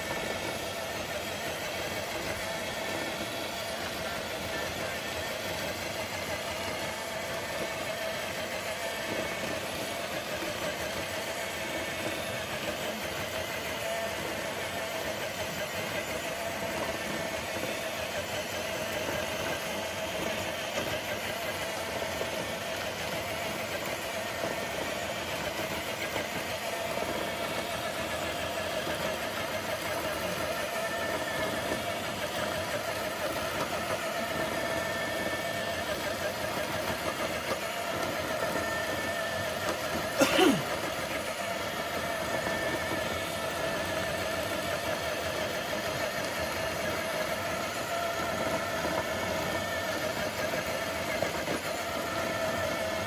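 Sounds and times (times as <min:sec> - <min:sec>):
electric motor and gears whining: 0:00.0 - 0:53.0.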